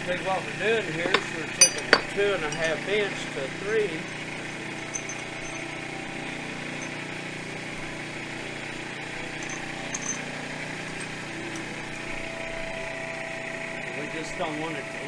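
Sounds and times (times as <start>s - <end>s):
machine droning: 0.0s - 15.0s.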